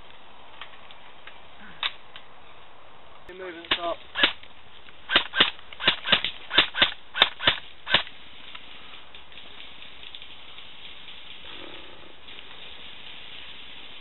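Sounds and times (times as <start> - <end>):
airsoft gun shots: 3.7 - 4.4, 5.1 - 8.1.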